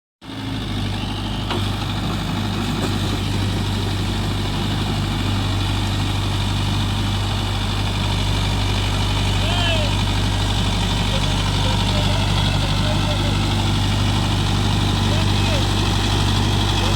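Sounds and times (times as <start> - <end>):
tractor diesel engine running: 0.2 - 16.9.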